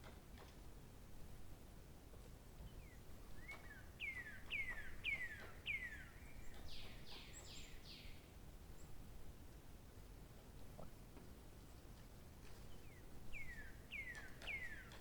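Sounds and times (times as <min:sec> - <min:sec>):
songbird singing: 0:02.7 - 0:08.3, 0:12.7 - 0:15.0.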